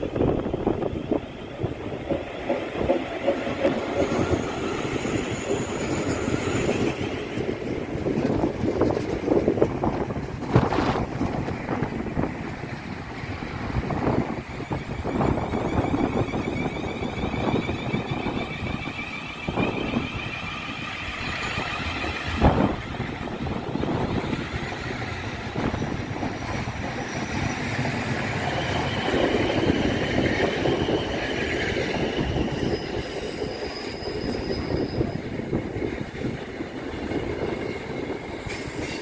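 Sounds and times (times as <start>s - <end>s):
train wheels rumbling on rail: 0.0s - 39.0s
wind buffeting microphone: 0.0s - 39.0s
high-pitched wheel squeal: 3.9s - 7.0s, 14.8s - 22.2s, 31.8s - 35.4s.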